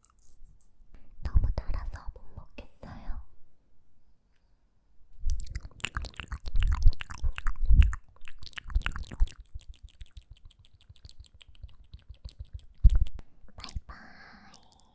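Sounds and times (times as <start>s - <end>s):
mouth pops: 5.3s - 13.8s
wet mouth clicks and smacks: 5.3s - 13.8s.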